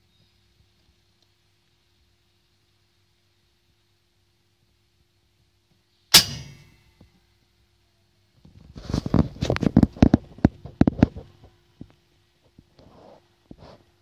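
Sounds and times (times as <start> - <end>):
sharp clack: 6.1 - 6.9.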